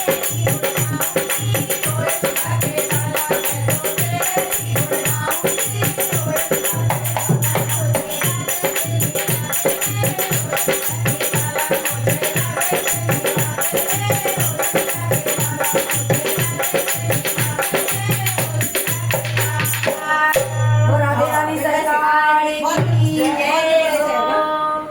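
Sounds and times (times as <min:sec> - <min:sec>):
hand drum rhythm: 0:00.0 - 0:20.8
jingling hand percussion: 0:00.0 - 0:24.4.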